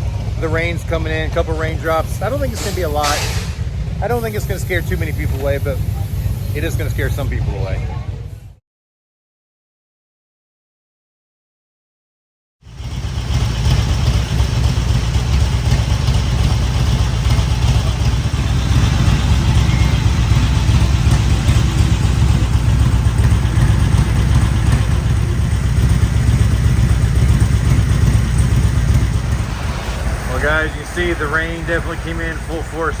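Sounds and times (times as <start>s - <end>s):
heavy rain pouring: 29.0s - 33.0s.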